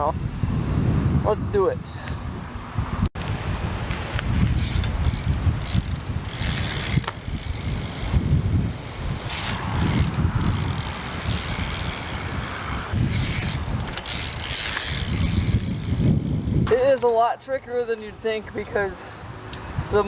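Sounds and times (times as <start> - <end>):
bike freewheel ratcheting: 4.4 - 8.5, 9.2 - 17.1.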